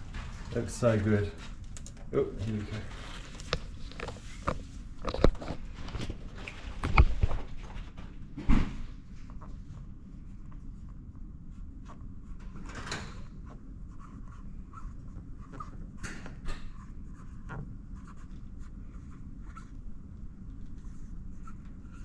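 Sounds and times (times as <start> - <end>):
low steady hum: 0.0 - 22.0
thump: 8.4 - 8.8.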